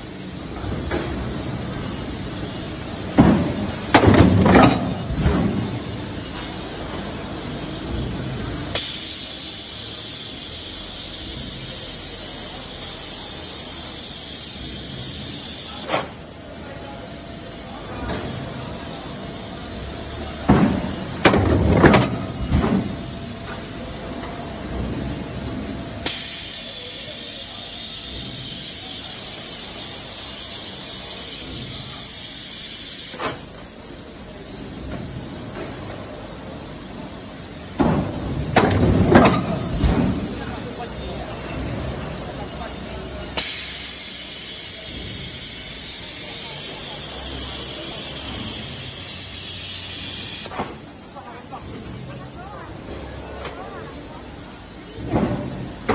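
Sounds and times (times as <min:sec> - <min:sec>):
machinery air hiss: 0:08.6 - 0:16.2, 0:26.0 - 0:34.2, 0:42.8 - 0:51.0.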